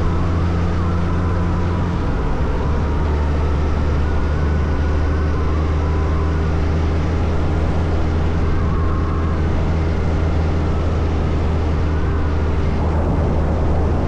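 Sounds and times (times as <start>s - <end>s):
wind noise rushing: 11.2s - 14.0s.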